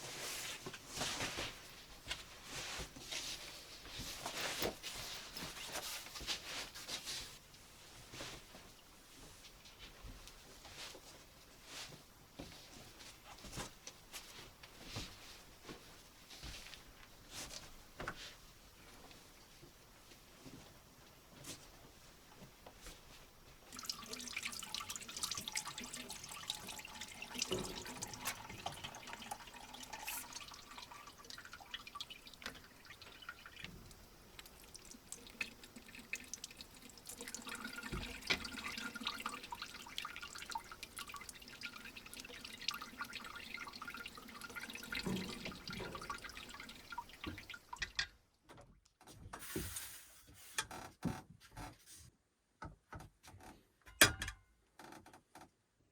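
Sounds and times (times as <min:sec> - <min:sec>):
water dripping: 0:23.6 - 0:48.1
water splashing: 0:23.7 - 0:47.9.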